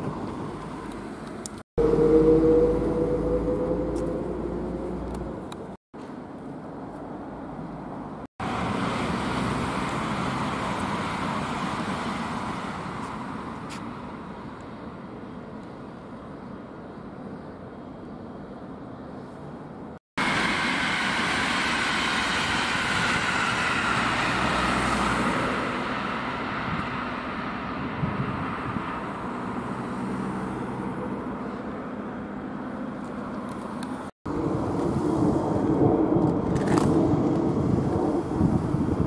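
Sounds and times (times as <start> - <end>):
falling whine: 1.8 - 5.8
jet airliner roar overhead: 1.8 - 5.8, 20.2 - 32.6, 34.3 - 39.0
passenger train rumbling past: 1.8 - 5.8, 20.2 - 31.2, 34.3 - 39.0.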